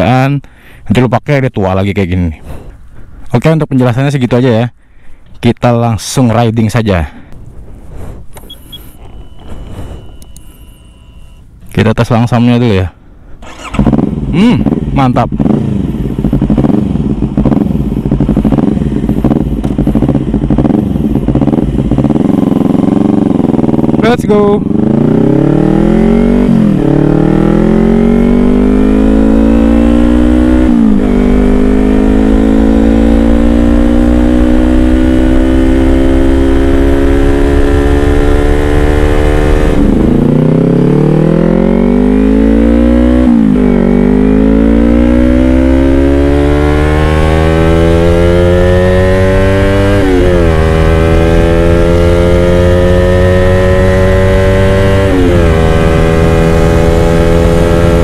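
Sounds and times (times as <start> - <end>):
motorcycle engine accelerating: 13.4 - 58.0.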